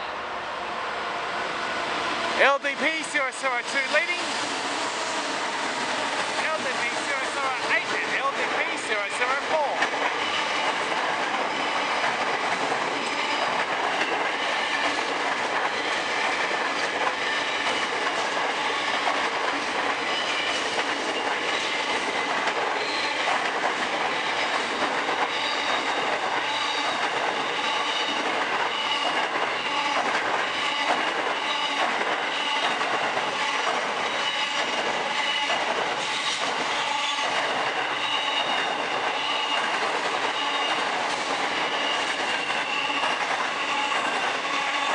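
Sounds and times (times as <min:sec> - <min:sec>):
train wheels rumbling on rails: 0:00.0 - 0:44.9
clickety-clack over rail joints: 0:02.4 - 0:44.9
high wheel squeal: 0:25.3 - 0:27.0.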